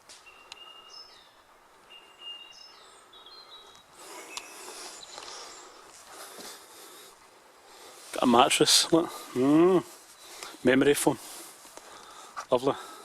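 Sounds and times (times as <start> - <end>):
bird singing whistled notes: 0.1 - 5.8.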